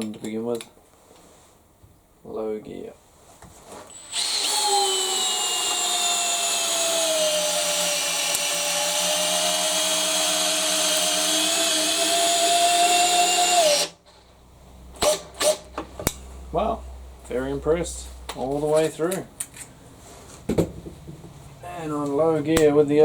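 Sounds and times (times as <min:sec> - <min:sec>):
cordless drill driving a screw: 0:03.9 - 0:14.0.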